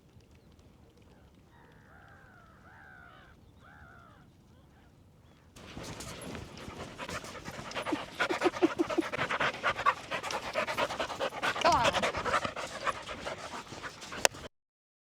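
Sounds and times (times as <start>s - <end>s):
dog panting rapidly: 5.6s - 14.5s.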